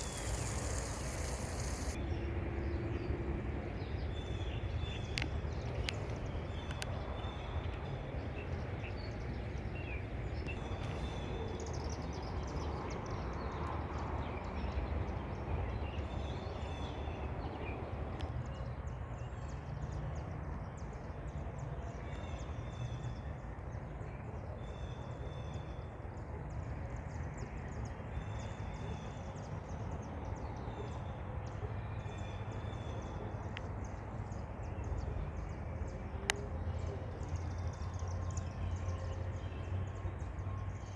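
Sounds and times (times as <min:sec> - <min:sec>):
small birds chirping: 0:00.0 - 0:02.0.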